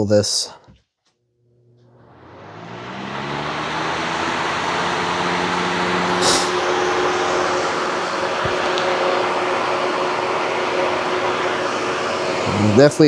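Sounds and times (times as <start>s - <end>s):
box fan motor hum: 1.6s - 12.9s
fan air rushing: 2.0s - 13.0s
brief hiss: 6.1s - 6.6s.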